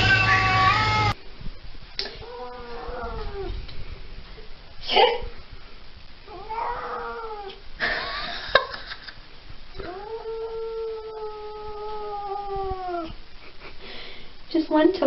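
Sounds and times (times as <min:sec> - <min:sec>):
cat yowling: 0:00.0 - 0:01.2, 0:06.3 - 0:07.6, 0:09.8 - 0:13.2.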